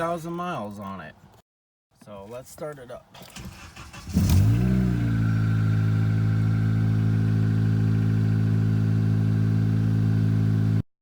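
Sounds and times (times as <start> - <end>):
car engine starting and idling: 3.2 - 10.8.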